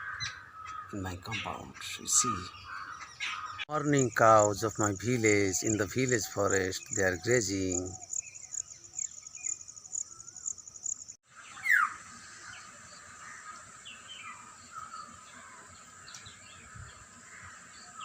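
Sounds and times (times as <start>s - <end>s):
birds calling: 0.0s - 18.0s
steady high insect trill: 3.7s - 15.7s
insects chirping in pulsing rhythm: 3.9s - 11.2s.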